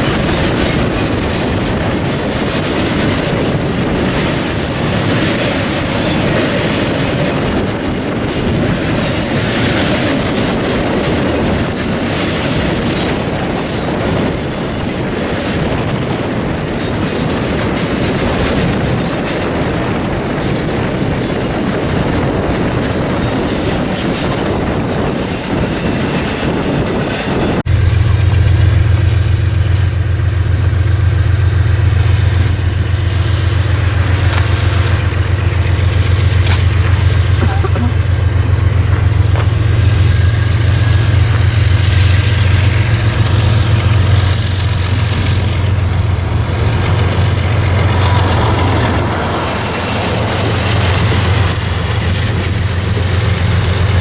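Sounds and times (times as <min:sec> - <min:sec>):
train wheels rushing on track: 0:00.0 - 0:54.0
low engine drone: 0:27.5 - 0:54.0.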